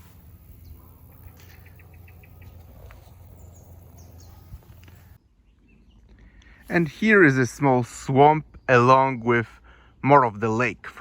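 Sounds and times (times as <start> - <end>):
high bird chirps: 0.0 - 6.1.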